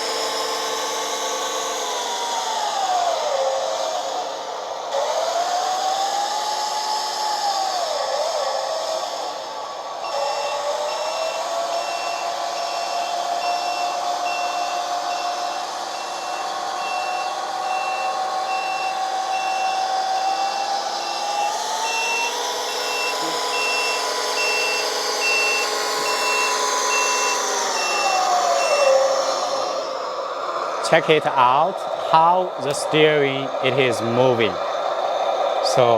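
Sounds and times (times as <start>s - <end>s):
simulated diesel engine: 0.0s - 35.9s
reversing beeper: 10.0s - 30.2s.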